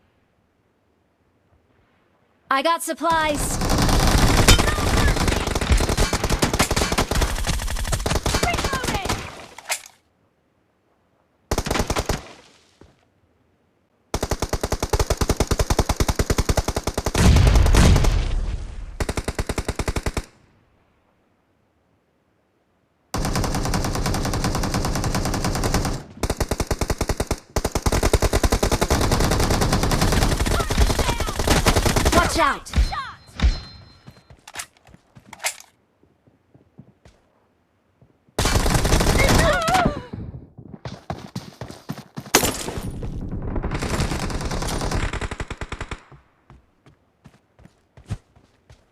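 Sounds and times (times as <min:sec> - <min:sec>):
loud gunfire burst: 0:03.2 - 0:09.2, 0:23.2 - 0:32.5.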